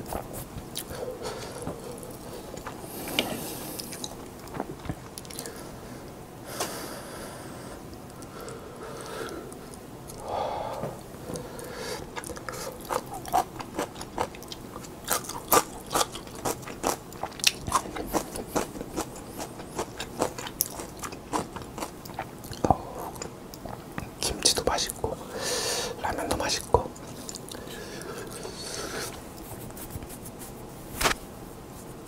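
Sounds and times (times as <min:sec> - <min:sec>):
chewing noodles with mouth clicks: 0:12.1 - 0:24.2.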